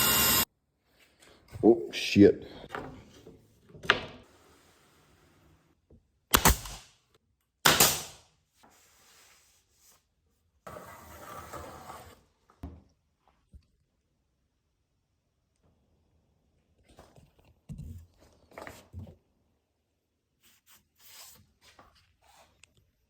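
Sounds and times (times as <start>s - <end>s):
scrape: 8.6s - 10.1s, 10.7s - 12.3s, 20.4s - 22.6s.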